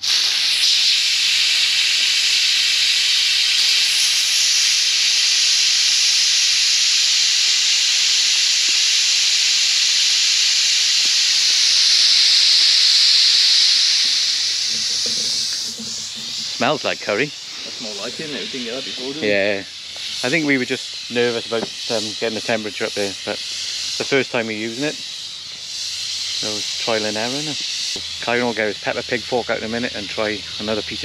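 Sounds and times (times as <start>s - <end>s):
pressure cooker venting steam: 0.0s - 31.0s.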